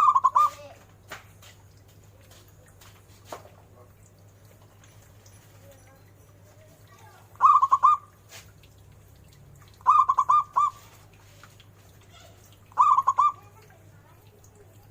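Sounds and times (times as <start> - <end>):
dove cooing: 0.0 - 0.8, 7.4 - 8.2, 9.8 - 11.0, 12.2 - 13.7.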